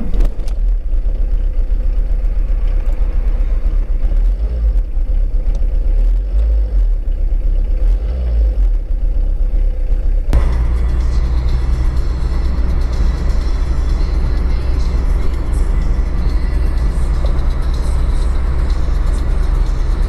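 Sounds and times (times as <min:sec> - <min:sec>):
car engine and road rumble: 0:00.0 - 0:20.0
faint steady hum: 0:10.4 - 0:20.0.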